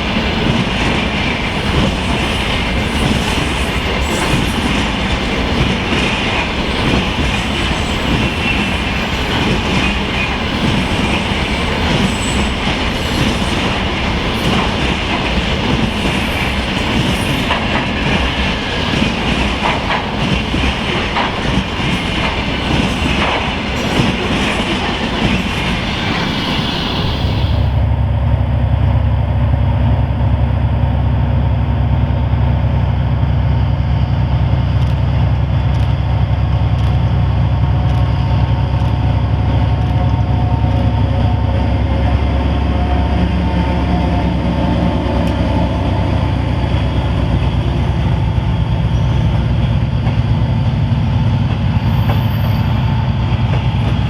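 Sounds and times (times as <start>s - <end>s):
rail hiss: 0.0s - 28.4s, 51.6s - 54.0s
diesel locomotive engines humming: 0.0s - 54.0s.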